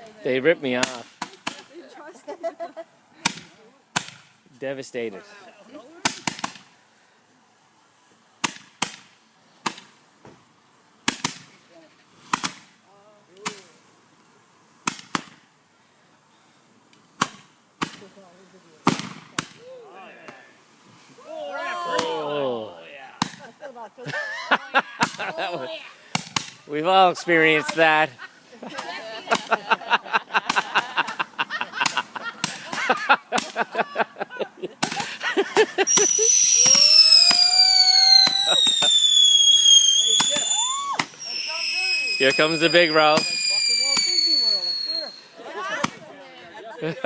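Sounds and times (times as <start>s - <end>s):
fireworks bangs: 5.9s - 6.8s, 11.0s - 11.6s, 18.8s - 19.6s, 23.2s - 23.6s, 25.0s - 25.5s, 26.1s - 33.8s, 34.8s - 46.1s
pitched firework whistles bending: 35.8s - 45.4s.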